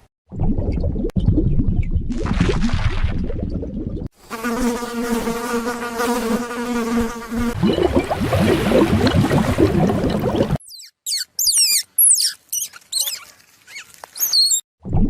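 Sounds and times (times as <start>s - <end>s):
insect buzzing: 4.2s - 7.6s
scratchy animal sound: 10.7s - 14.6s.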